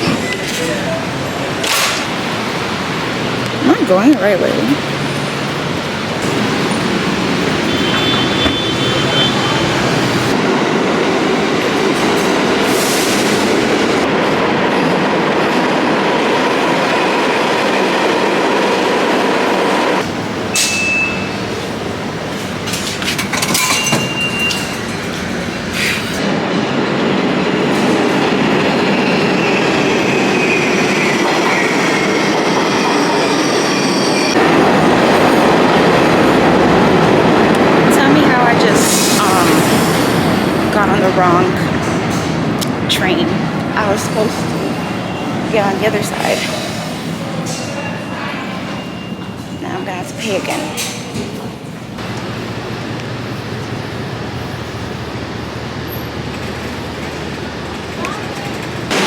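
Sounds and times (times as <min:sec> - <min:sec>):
subway train rumbling: 0:00.0 - 0:59.0
wheel squeals: 0:23.0 - 0:26.2.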